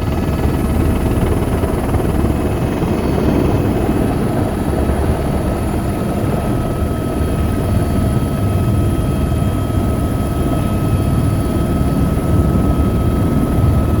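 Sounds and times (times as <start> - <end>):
helicopter rotor rumble: 0.0 - 14.0.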